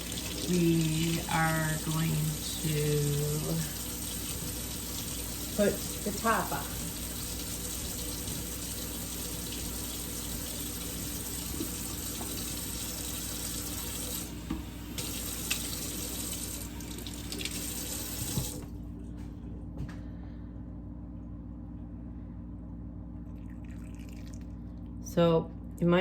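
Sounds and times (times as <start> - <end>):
kitchen tap running into sink: 0.0 - 18.7.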